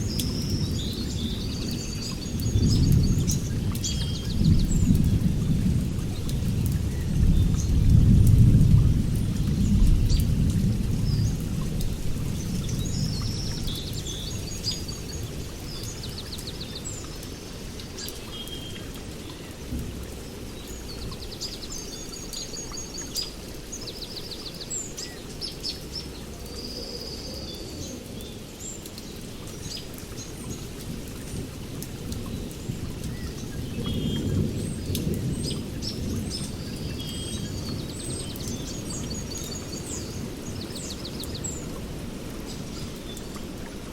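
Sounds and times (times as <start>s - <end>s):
songbirds chirping: 0.0s - 43.9s
steady rain: 0.0s - 43.9s
thunder rumbling: 0.5s - 16.2s.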